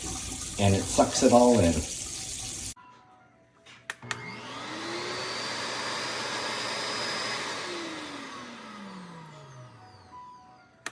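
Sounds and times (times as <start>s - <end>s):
vacuum motor whining: 4.0s - 10.9s.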